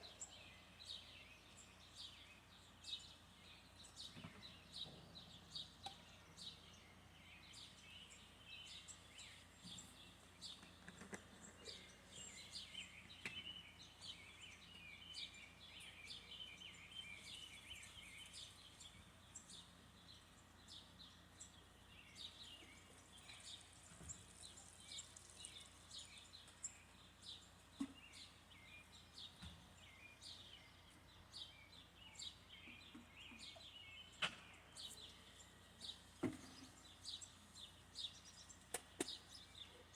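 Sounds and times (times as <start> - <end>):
faint birds chirping: 0.0 - 39.9
low background hum: 0.0 - 39.9.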